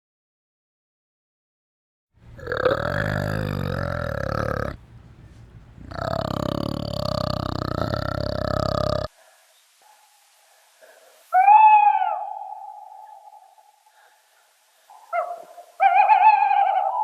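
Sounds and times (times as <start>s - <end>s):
long low animal calls: 2.2s - 9.1s.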